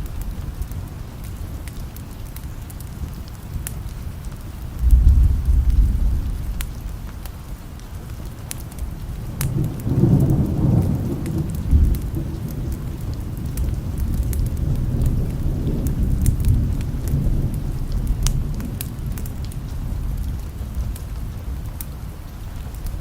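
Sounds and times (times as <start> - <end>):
steady rain: 0.0 - 23.0
thunder rumbling: 4.8 - 7.6, 8.8 - 23.0.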